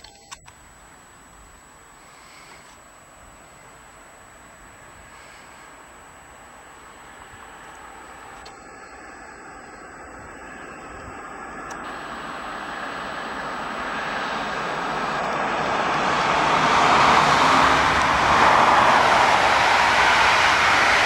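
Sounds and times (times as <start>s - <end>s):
train wheels rolling on rail: 7.1s - 21.0s.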